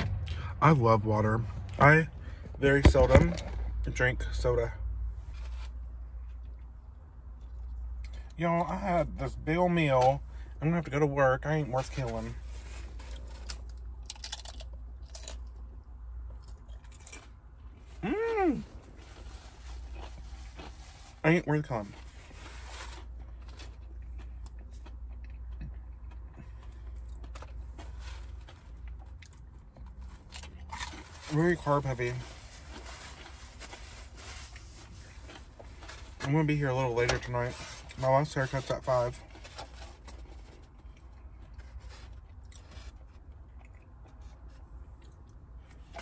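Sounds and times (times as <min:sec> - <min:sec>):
low car cabin hum: 0:00.0 - 0:46.0
person chewing food: 0:13.2 - 0:17.8, 0:19.1 - 0:20.9, 0:23.1 - 0:31.1, 0:40.8 - 0:45.9.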